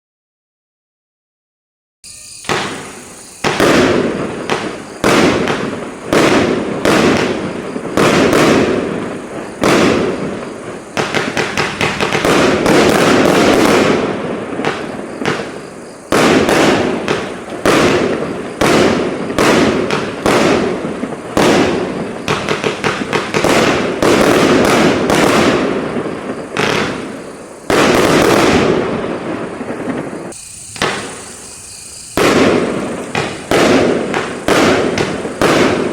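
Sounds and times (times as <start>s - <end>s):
firework battery shots and bangs: 2.0s - 35.9s.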